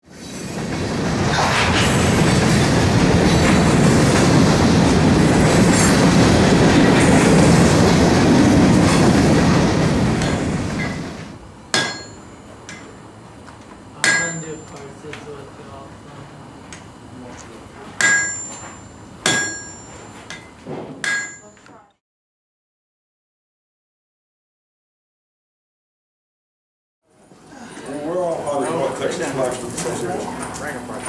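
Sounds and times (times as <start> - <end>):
train rumbling: 0.0 - 21.6
hammer striking metal: 10.2 - 11.0, 11.7 - 13.0, 14.0 - 15.0, 18.0 - 21.6.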